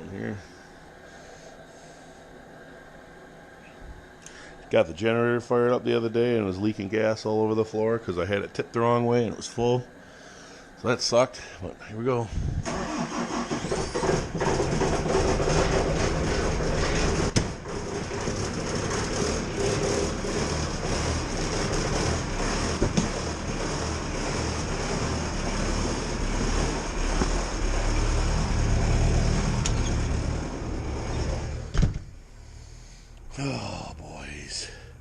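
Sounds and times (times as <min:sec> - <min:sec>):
loader engine running: 0:12.5 - 0:33.2.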